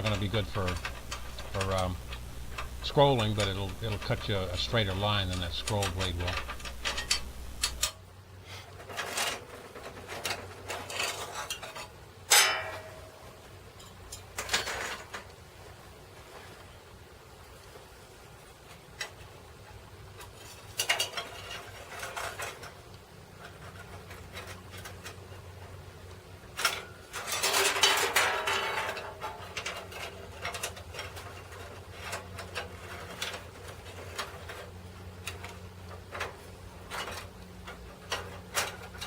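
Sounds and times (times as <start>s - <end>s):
band saw parts clattering: 0.0s - 8.0s
faint low hum: 0.0s - 16.6s.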